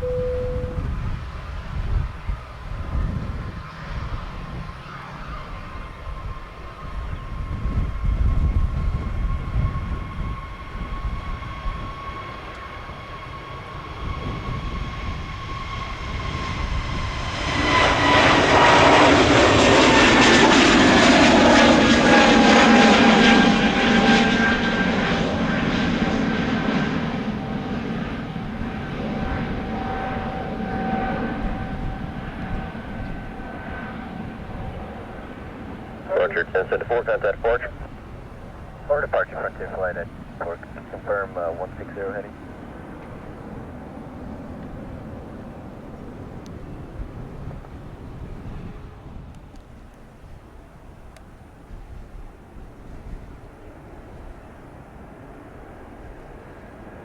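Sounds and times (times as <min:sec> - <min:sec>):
wind rumble on microphone: 0:00.0 - 0:12.2, 0:30.8 - 0:34.9, 0:43.0 - 0:55.2
jet engines whining and roaring: 0:00.0 - 0:57.0.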